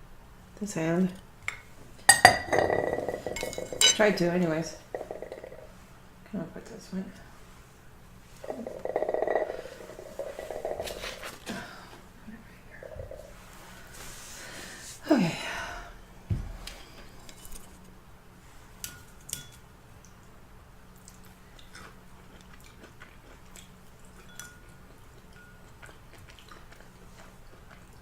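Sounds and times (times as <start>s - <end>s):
chewing: 8.4s - 11.5s, 21.0s - 28.0s.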